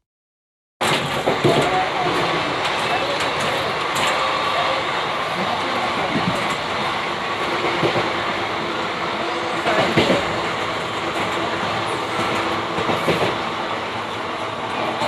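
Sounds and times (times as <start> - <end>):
train coaches rumbling: 0.8 - 15.0
train wheels clattering: 9.6 - 13.5.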